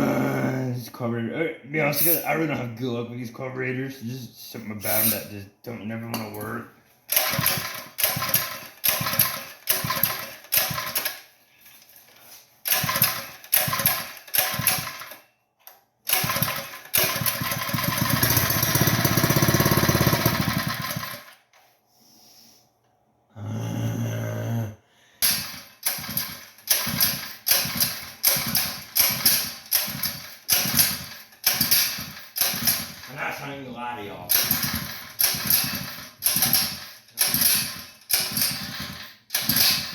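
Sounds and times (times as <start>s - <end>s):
small engine cranking: 7.1s - 11.3s, 12.6s - 15.2s, 16.1s - 21.4s, 25.2s - 33.2s, 34.3s - 39.9s
engine running unevenly: 17.2s - 21.1s.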